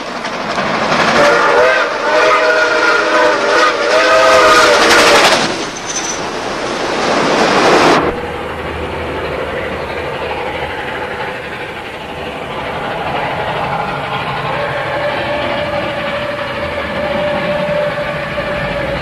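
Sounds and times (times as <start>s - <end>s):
locomotive rumble: 0.0s - 19.0s
steam rushing: 0.0s - 19.0s
steam locomotive chime whistle: 1.2s - 6.2s, 14.4s - 19.0s.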